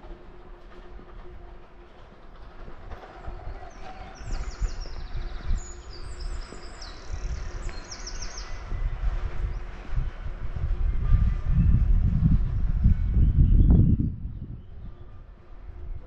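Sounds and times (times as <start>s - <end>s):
songbird singing trills: 4.0s - 8.7s.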